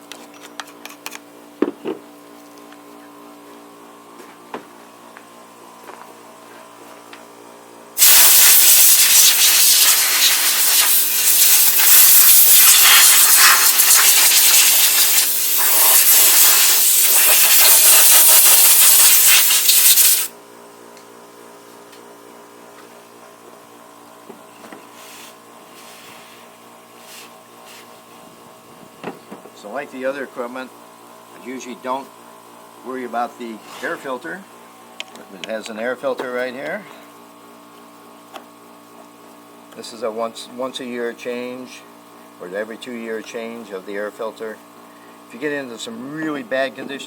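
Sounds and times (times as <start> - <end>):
compressed air blow gun hissing: 8.0 - 20.3.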